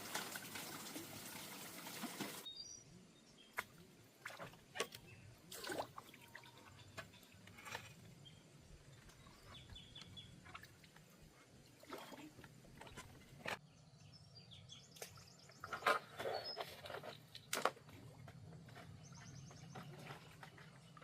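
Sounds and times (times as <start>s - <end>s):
water trickling: 0.0s - 2.5s.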